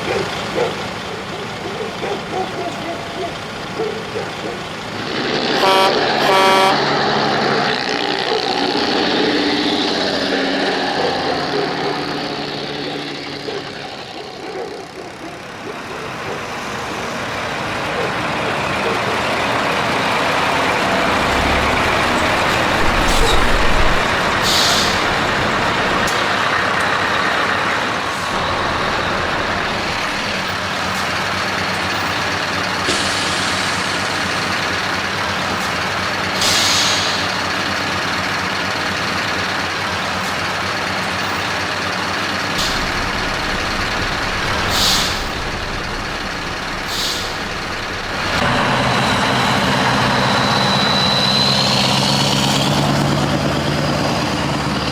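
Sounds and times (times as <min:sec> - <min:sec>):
heavy truck engines passing: 0:00.0 - 0:54.9
air-brake hiss: 0:21.2 - 0:26.4, 0:27.9 - 0:38.4, 0:42.4 - 0:48.5.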